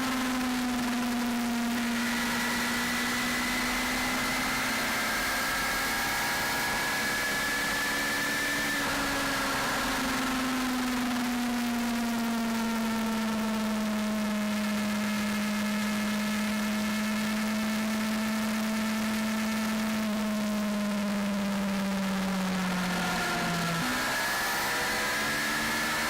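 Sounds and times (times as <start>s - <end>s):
motorcycle engine cruising: 0.0s - 11.6s, 22.1s - 26.0s.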